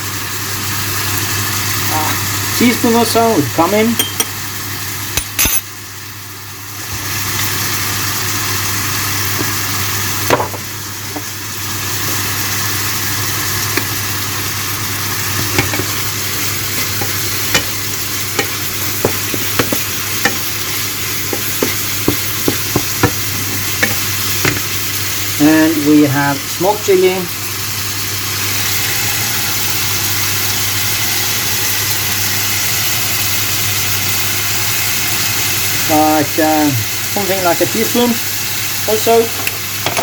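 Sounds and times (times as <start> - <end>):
chicken sizzling in frying pan: 0.0 - 40.0
utensil tapping pan: 16.7 - 24.8.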